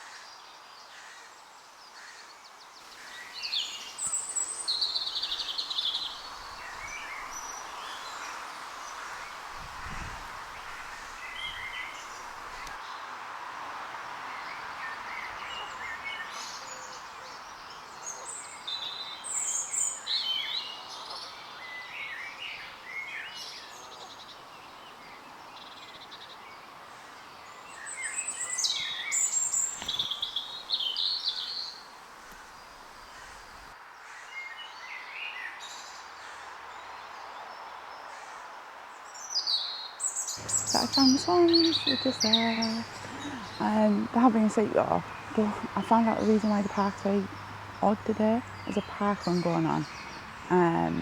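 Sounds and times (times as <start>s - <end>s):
outdoor background hiss: 0.0s - 51.0s
birds chirping and singing: 27.6s - 33.6s, 40.3s - 51.0s.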